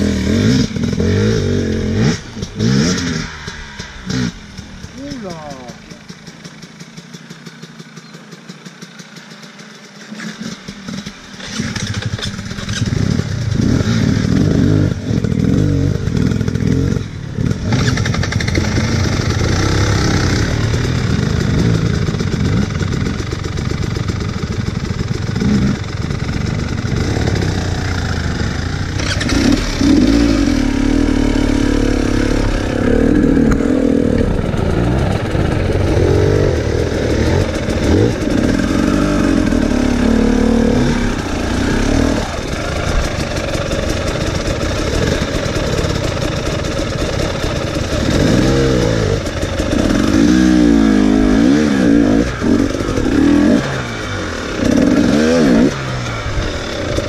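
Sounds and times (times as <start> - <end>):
dirt bike engine: 0.0 - 57.0.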